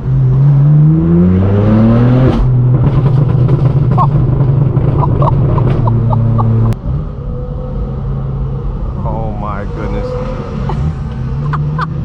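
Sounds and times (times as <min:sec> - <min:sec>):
car exhaust revving: 0:00.0 - 0:09.0.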